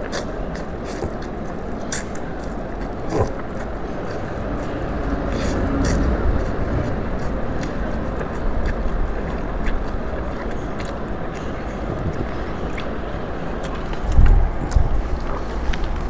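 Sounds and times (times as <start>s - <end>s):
mouth and chewing clicks: 0.0s - 16.0s
steady rumbling background noise: 0.0s - 16.0s.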